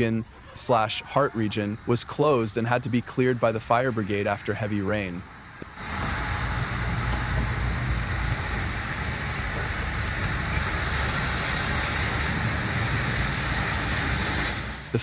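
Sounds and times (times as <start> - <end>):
low rumble: 5.3 - 15.0.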